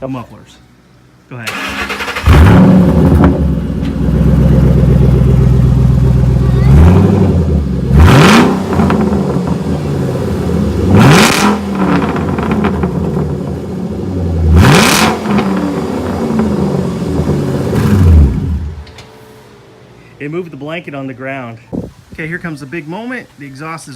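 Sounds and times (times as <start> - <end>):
car engine revving: 1.5 - 20.0.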